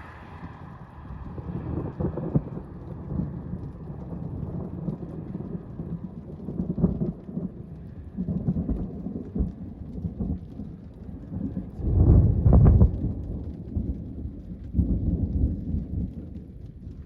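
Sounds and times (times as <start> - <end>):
rain falling: 0.0 - 17.0
thunder rumbling: 0.0 - 17.0.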